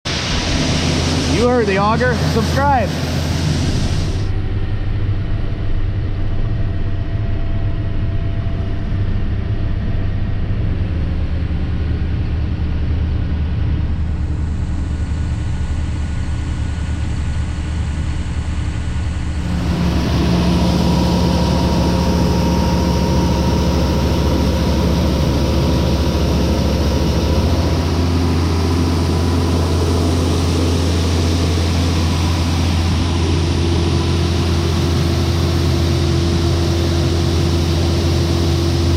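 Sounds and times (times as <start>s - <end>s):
heavy diesel engine humming: 0.1s - 4.4s, 16.6s - 38.9s.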